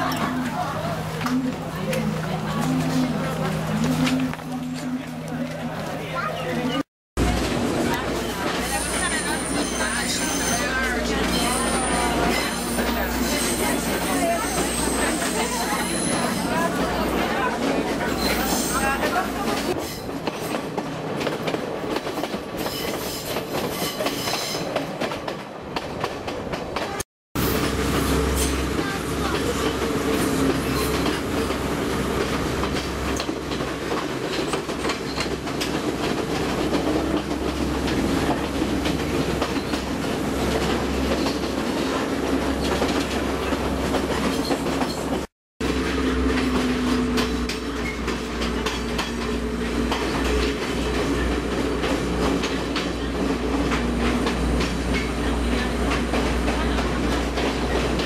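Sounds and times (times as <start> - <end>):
train carriage low rumble: 0.0 - 58.0
wheels clattering on rails: 0.0 - 58.0.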